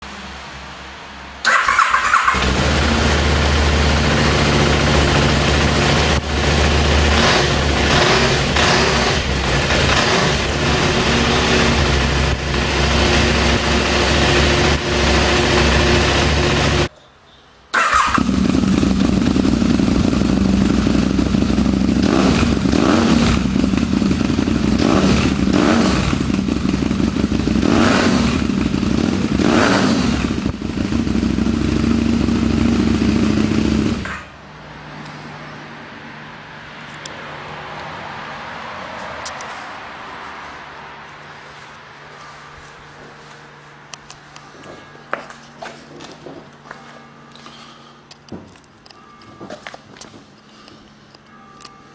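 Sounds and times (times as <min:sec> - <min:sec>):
motorcycle engine idling and revving: 0:01.4 - 0:16.9, 0:17.8 - 0:46.6
motorcycle starter cranking: 0:01.4 - 0:16.9, 0:17.8 - 0:34.3.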